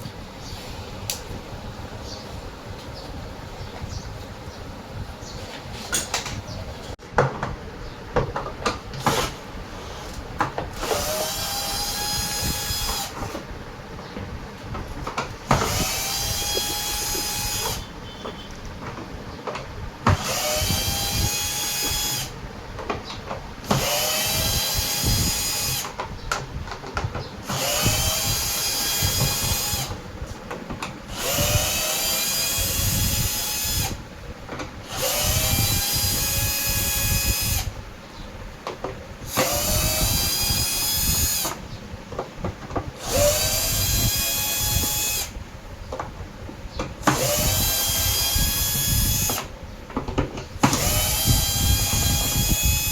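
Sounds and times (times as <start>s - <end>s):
power drill whining: 9.0s - 13.4s, 15.5s - 17.9s, 20.1s - 22.4s, 23.6s - 26.0s, 27.4s - 30.0s, 31.1s - 34.0s, 34.8s - 37.8s, 39.3s - 41.6s, 43.0s - 45.4s, 47.0s - 49.5s, 50.6s - 52.9s.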